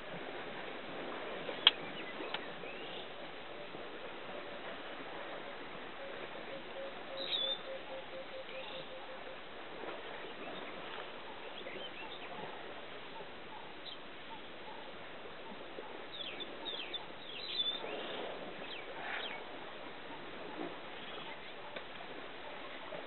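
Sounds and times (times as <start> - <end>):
steady outdoor hiss: 0.0 - 23.0
birds chirping: 6.0 - 9.4, 10.2 - 12.5, 13.2 - 19.5, 21.0 - 21.8.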